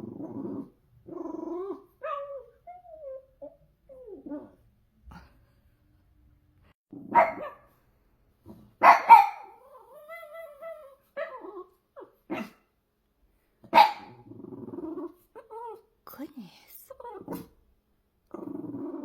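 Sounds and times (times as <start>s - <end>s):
dog growling: 0.0s - 5.4s, 9.5s - 11.7s, 14.0s - 15.8s, 17.0s - 17.6s, 18.3s - 19.0s
dog yipping: 2.0s - 3.6s, 7.1s - 7.6s, 8.8s - 12.6s
dog barking: 7.0s - 7.7s, 8.8s - 9.6s, 12.3s - 12.6s, 13.7s - 14.2s.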